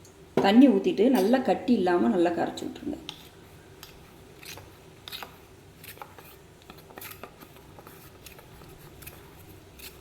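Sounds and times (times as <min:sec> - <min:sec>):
utensil stirring paste: 0:02.8 - 0:10.0.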